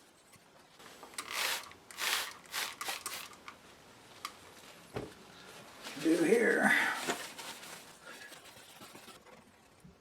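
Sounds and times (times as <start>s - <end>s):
rustling scraping handling noise: 5.4s - 9.8s.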